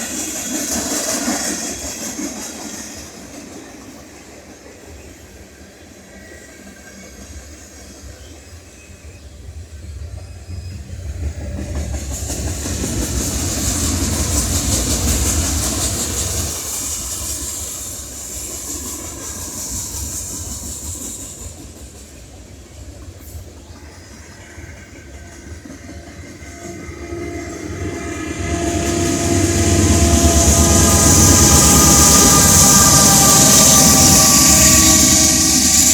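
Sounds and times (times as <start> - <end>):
freight train cars rumbling: 0.0 - 35.9
high wheel hiss: 11.8 - 35.9.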